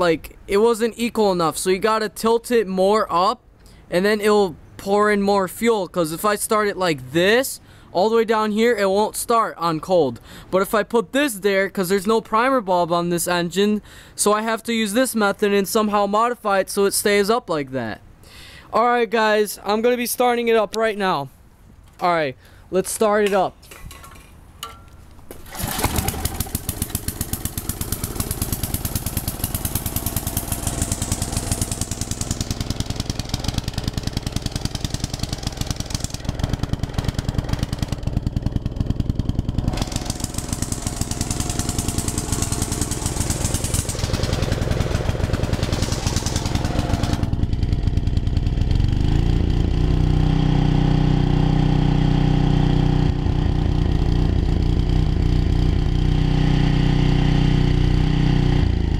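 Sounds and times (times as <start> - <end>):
generator engine running: 25.5 - 58.9.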